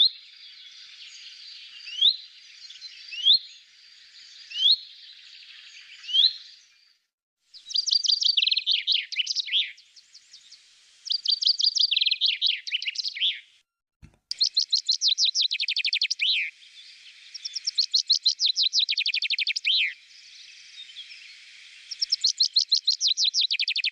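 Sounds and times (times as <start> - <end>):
chaffinch singing trilled phrases: 7.6 - 9.8, 11.1 - 13.4, 14.3 - 23.9.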